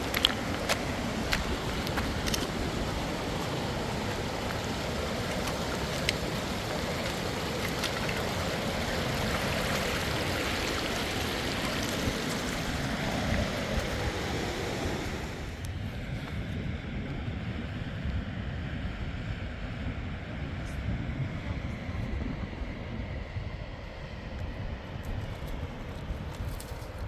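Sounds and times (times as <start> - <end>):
mountain stream rushing: 0.0 - 15.7.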